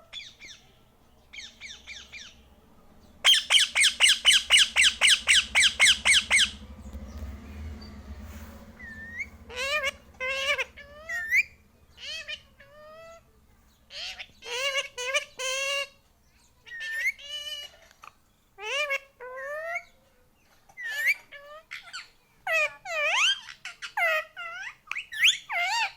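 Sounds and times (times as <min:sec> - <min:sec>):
parrot chattering: 0:03.2 - 0:06.6, 0:08.8 - 0:13.2, 0:13.9 - 0:16.0, 0:16.6 - 0:20.0, 0:20.8 - 0:25.9.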